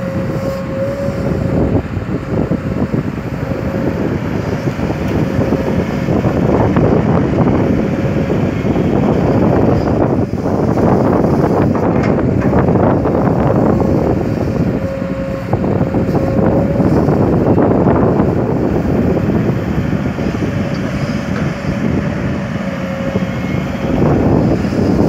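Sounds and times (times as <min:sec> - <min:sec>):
excavator diesel engine: 0:00.0 - 0:25.0
high steady machine whine: 0:00.0 - 0:25.0.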